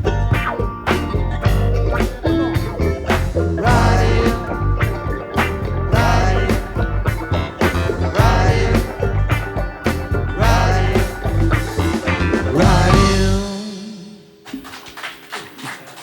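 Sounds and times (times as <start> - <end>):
live rock band playing: 0.0 - 15.6
person singing: 3.4 - 14.4.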